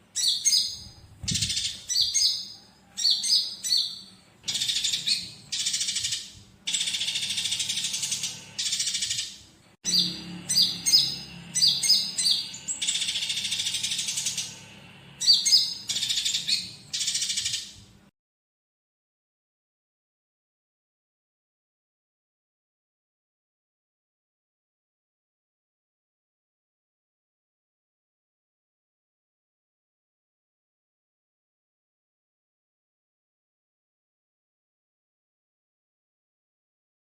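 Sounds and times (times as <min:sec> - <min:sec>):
bird singing whistled notes: 0:00.2 - 0:14.6, 0:15.2 - 0:17.8
buzzy bird chattering: 0:04.5 - 0:17.7.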